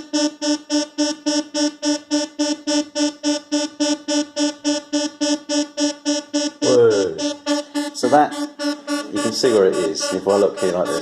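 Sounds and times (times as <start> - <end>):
buzzy synthesizer note pulsing: 0.0 - 11.0.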